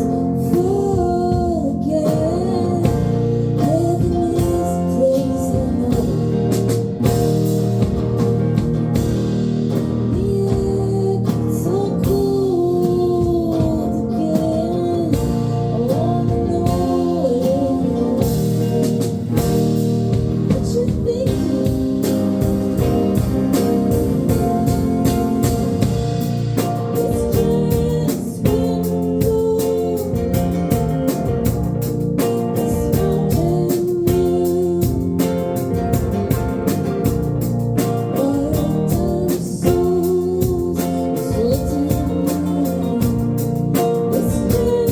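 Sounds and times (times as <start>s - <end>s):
person singing lead vocal: 0.0s - 7.0s, 10.0s - 19.0s, 20.4s - 22.4s, 26.9s - 30.8s, 32.6s - 35.7s, 37.8s - 44.9s
drum kit beat: 0.0s - 44.9s
guitar: 0.0s - 44.9s.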